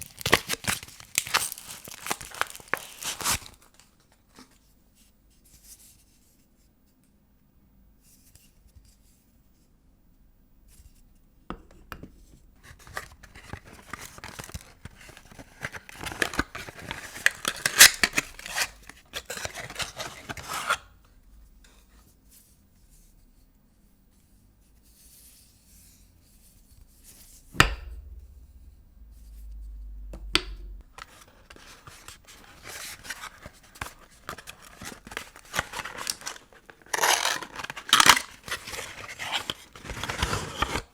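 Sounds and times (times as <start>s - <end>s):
paper wrapping crinkling and tearing: 0.0s - 4.4s, 33.0s - 40.9s
sharp knock: 27.3s - 31.0s.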